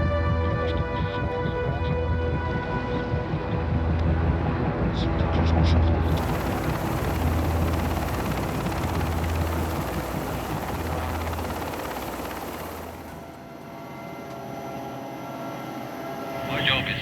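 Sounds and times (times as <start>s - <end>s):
helicopter rotors roaring: 5.9s - 14.2s
whining tones: 6.1s - 13.5s.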